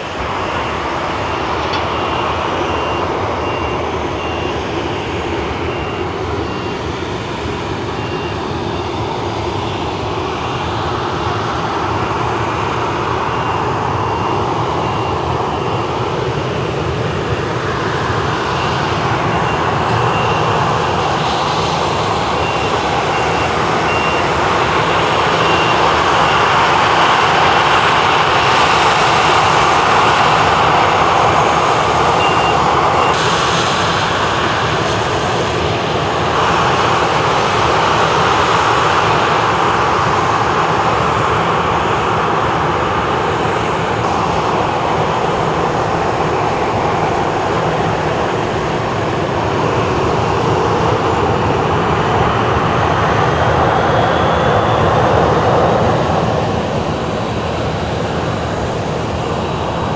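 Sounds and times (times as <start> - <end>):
loud engine running: 0.0 - 59.9.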